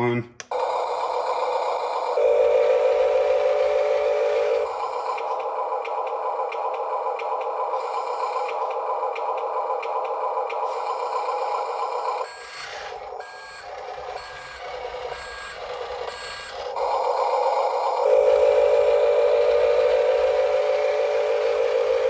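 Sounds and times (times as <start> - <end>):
simulated truck engine drone: 0.4 - 22.0
reversing beeper beeping: 10.7 - 22.0.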